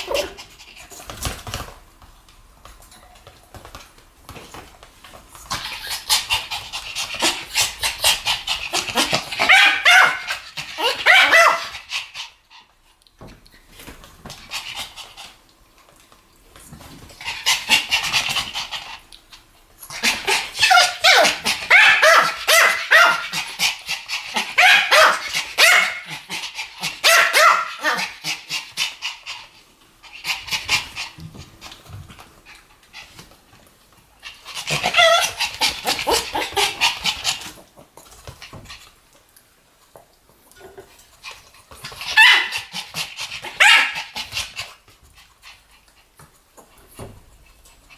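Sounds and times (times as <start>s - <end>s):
small dogs yapping: 0.0s - 0.6s, 5.5s - 12.4s, 19.9s - 29.3s, 34.2s - 37.6s, 41.8s - 44.7s.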